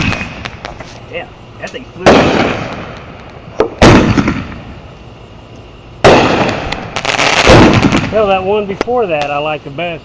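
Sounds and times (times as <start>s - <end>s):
firework bangs: 0.0s - 0.9s, 1.6s - 5.0s, 6.0s - 9.5s
firework crackling: 0.0s - 10.0s.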